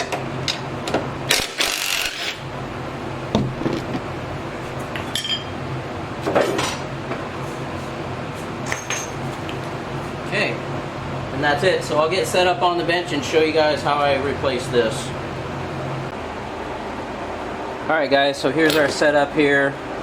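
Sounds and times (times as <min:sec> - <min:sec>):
steady low hum: 0:00.0 - 0:20.0
hand tools clinking and rattling: 0:08.6 - 0:09.5, 0:18.6 - 0:19.0.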